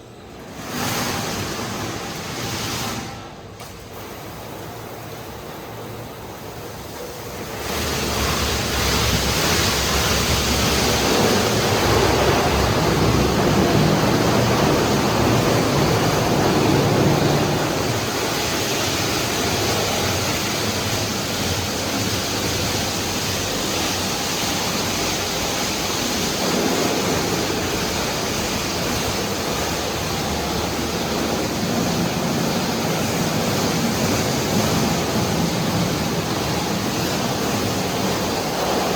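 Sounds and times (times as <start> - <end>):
high-pressure water jets hissing: 7.0 - 38.9.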